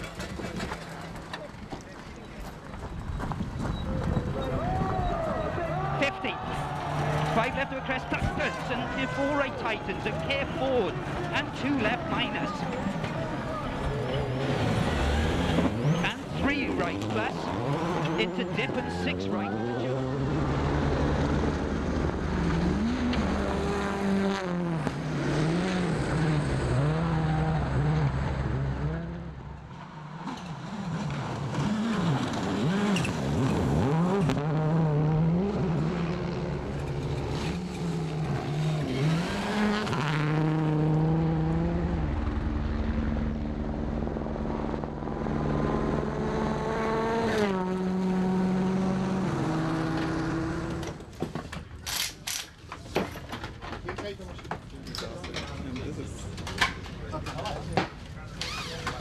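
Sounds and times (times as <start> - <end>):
quick gear changes: 0.0 - 26.7, 45.2 - 59.0
rally car engine revving: 0.0 - 59.0.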